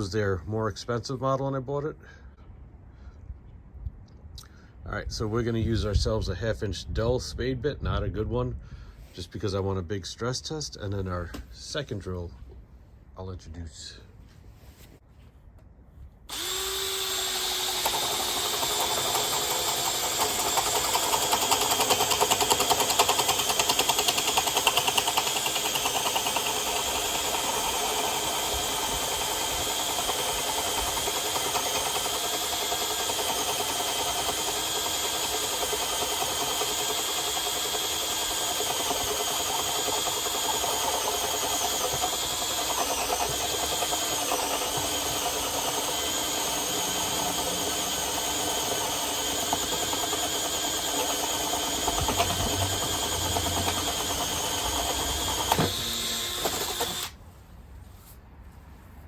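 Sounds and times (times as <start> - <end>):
power drill boring through wood: 16.3 - 57.2.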